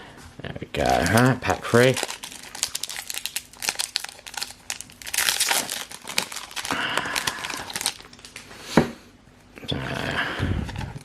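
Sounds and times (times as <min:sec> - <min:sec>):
foil wrapper crinkling: 0:00.8 - 0:08.5
foil wrapper ripping: 0:00.8 - 0:08.5.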